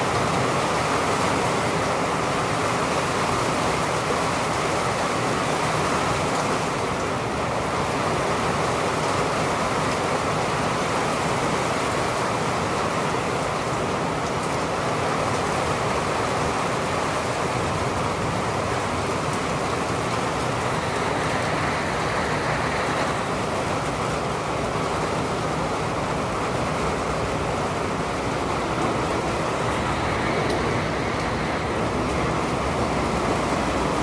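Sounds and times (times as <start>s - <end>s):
steady rain hiss: 0.0s - 34.0s
traffic on wet roads: 0.0s - 34.0s.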